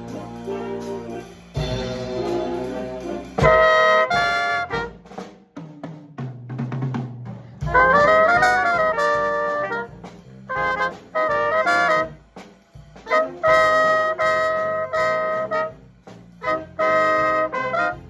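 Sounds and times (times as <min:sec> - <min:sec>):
jazz big band playing swing: 0:00.0 - 0:18.0.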